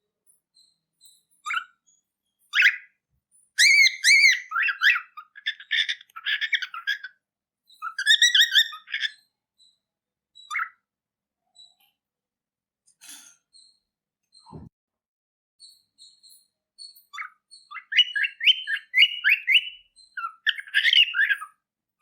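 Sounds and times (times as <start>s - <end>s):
cockatiel chirping: 0.6s - 1.8s, 2.5s - 2.9s, 3.5s - 9.8s, 10.4s - 10.8s, 15.6s - 21.6s.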